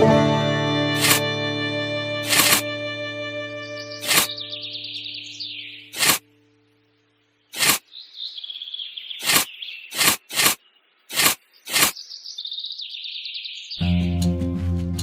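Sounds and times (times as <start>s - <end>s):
short loud swishes: 1.0s - 1.2s, 6.0s - 6.2s, 7.6s - 7.8s, 9.2s - 12.0s
birds chirping and trilling: 3.5s - 13.9s.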